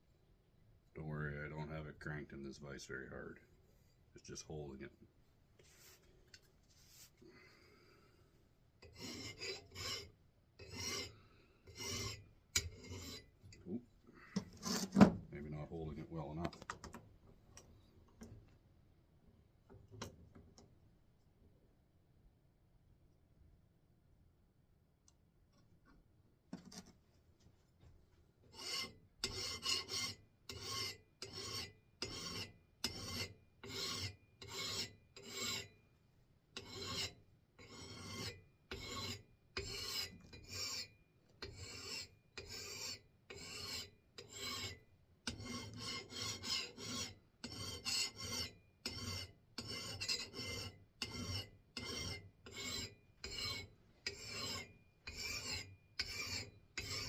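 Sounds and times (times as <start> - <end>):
file rasping on steel: 8.8 - 13.4, 14.4 - 15.0, 28.4 - 35.8, 36.5 - 57.0.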